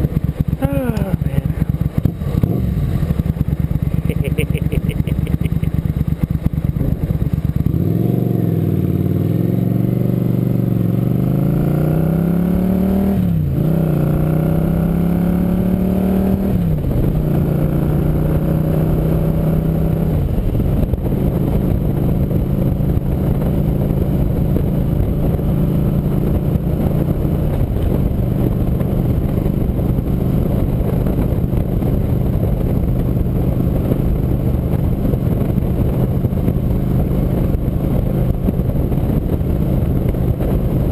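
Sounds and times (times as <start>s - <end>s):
constant rushing noise: 0.0s - 7.9s, 16.3s - 40.9s
motorcycle engine accelerating: 0.0s - 40.9s.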